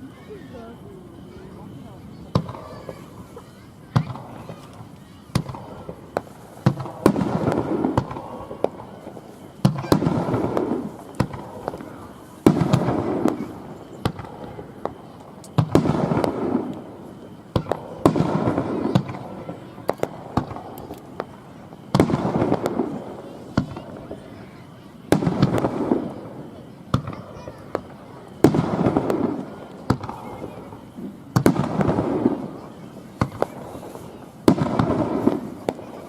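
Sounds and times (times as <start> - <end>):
firework shells booming: 0.5 - 36.0
crackling pops: 33.2 - 36.0.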